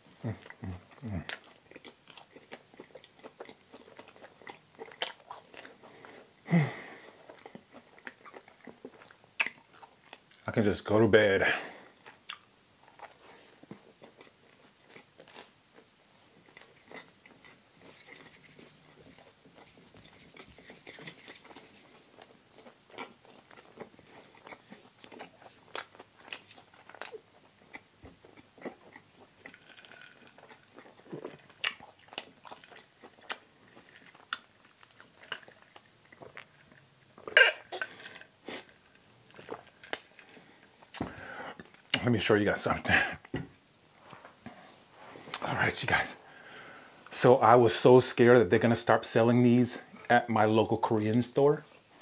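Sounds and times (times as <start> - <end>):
chewing and crunching food: 0.2 - 10.6, 11.7 - 42.2
wet mouth clicks and smacks: 39.4 - 40.2.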